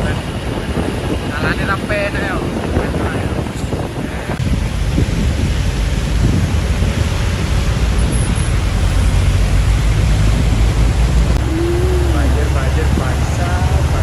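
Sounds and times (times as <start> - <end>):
road noise: 0.0 - 14.0
truck diesel engine rumbling: 0.0 - 14.0
wind noise: 0.0 - 14.0.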